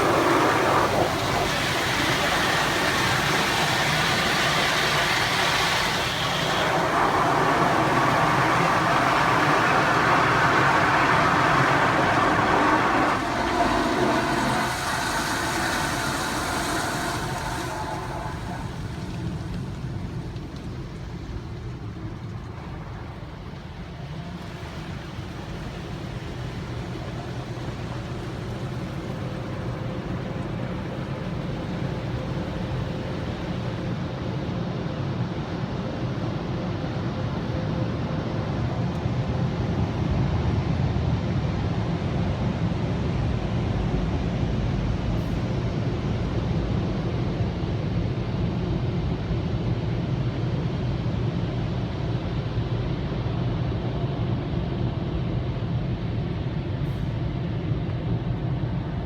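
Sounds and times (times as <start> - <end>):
car wash spray hissing: 0.0 - 21.2
car wash machine hum: 0.0 - 34.8.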